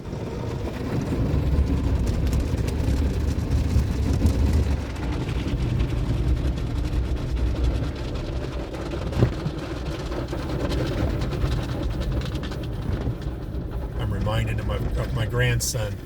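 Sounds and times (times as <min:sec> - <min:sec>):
car wash rumble: 0:00.0 - 0:16.0.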